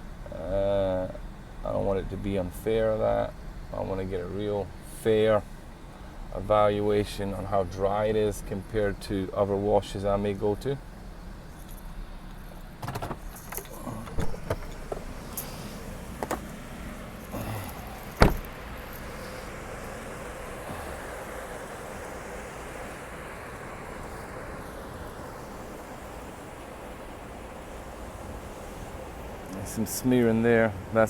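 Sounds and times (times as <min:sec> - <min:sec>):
outdoor background noise: 0:00.0 - 0:31.0
truck door shutting: 0:12.8 - 0:19.2.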